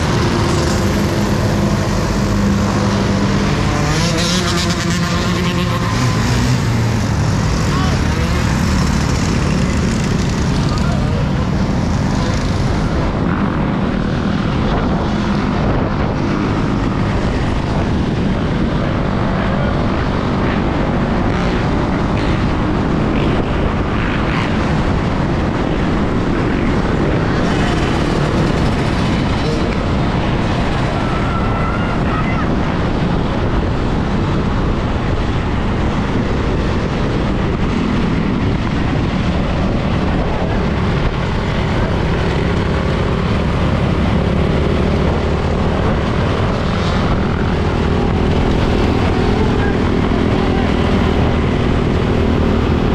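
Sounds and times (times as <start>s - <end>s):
wind buffeting microphone: 6.5s - 52.9s.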